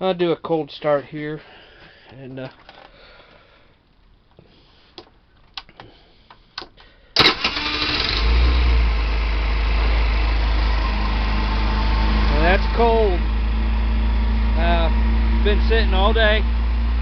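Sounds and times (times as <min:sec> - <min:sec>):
scooter engine starting and idling: 0:07.2 - 0:17.0.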